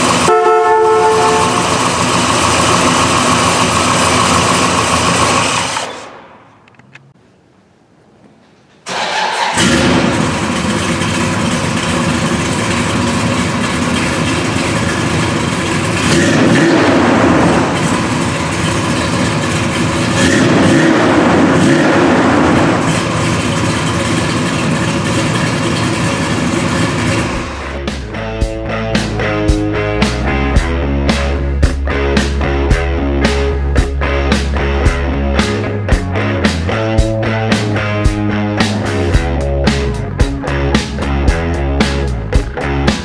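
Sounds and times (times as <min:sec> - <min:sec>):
car engine starting and revving: 0:00.0 - 0:06.4, 0:08.9 - 0:28.0.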